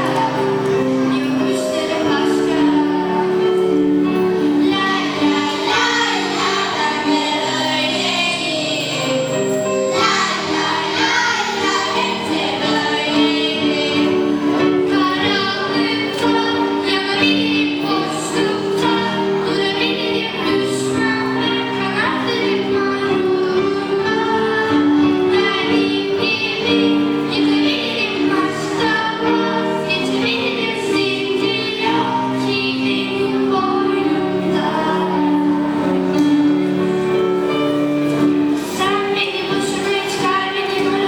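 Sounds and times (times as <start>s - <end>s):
children's choir singing: 0.0s - 41.0s
held instrumental notes: 0.0s - 41.0s.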